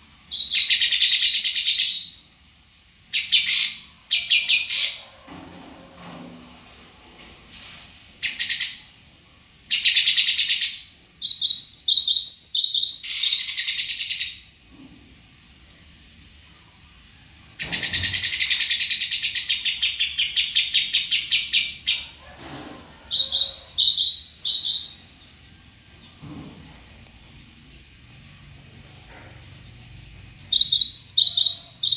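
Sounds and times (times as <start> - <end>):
songbird singing high chirps: 9.8 - 14.4, 23.2 - 25.4, 30.1 - 31.9.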